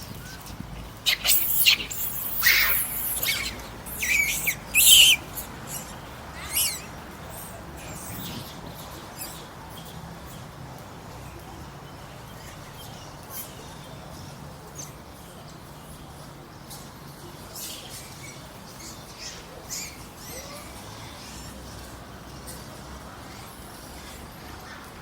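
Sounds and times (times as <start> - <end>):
monkeys squealing: 1.0 - 9.8, 18.2 - 21.5.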